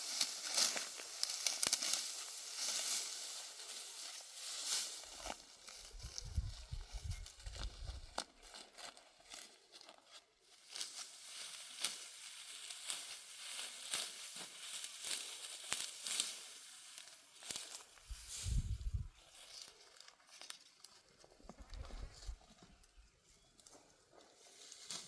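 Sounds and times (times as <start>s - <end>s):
dry wheat stalks crackling: 0.0s - 25.0s.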